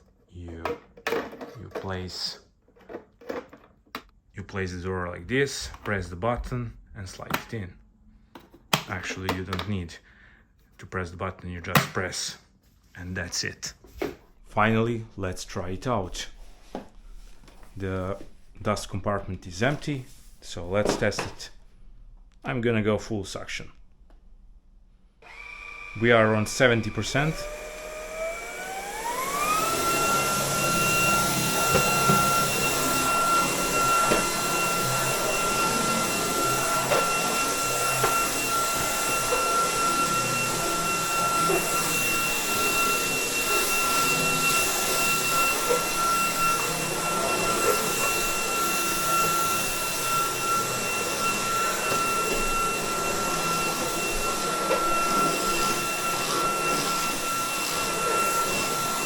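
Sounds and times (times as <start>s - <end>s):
vacuum motor whine: 25.2s - 59.0s.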